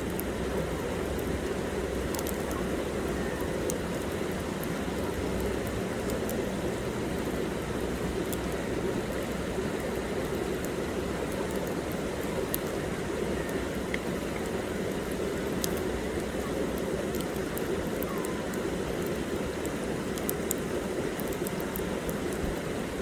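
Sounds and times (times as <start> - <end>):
campfire burning: 0.0 - 23.0
wood crackling and popping: 0.0 - 23.0.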